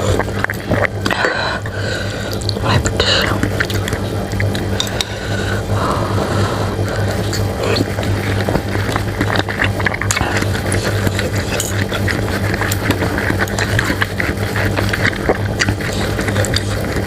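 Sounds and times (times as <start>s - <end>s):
small clicks and crackles: 0.0s - 1.4s, 2.2s - 5.2s, 6.9s - 17.0s
chewing and slurping: 0.0s - 17.0s
steady low hum: 0.0s - 17.0s.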